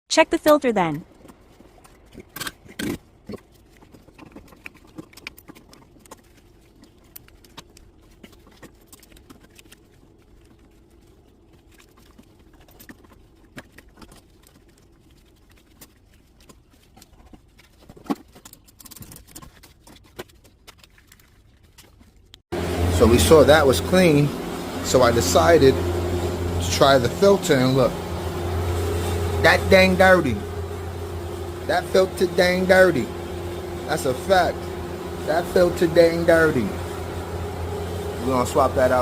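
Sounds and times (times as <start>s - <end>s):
faint steady hum: 22.6s - 39.0s.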